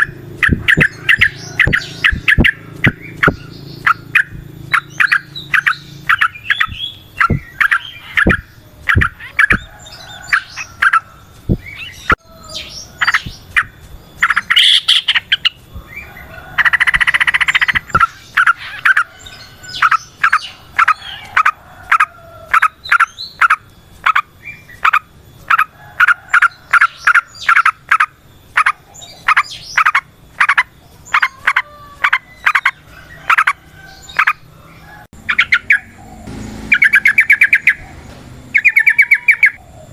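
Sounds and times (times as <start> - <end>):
bulbuls chirping: 0.0 - 39.9
harsh buzzy bird note: 35.3 - 39.6.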